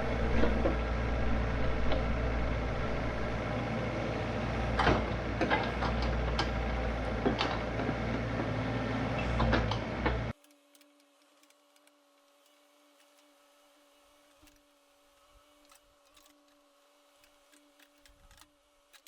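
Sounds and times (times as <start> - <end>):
diesel engine humming: 0.0 - 10.4.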